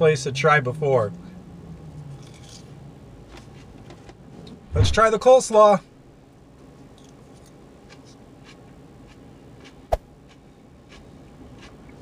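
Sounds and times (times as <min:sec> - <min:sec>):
steady background hum: 0:00.0 - 0:12.0
person chewing: 0:07.0 - 0:12.0.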